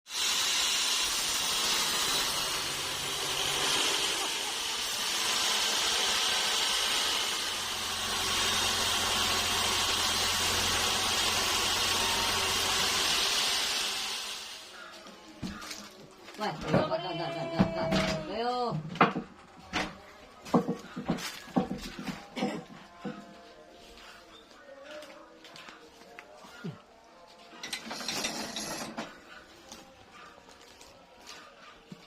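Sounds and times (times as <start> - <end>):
saw cutting through log: 0.0 - 15.8.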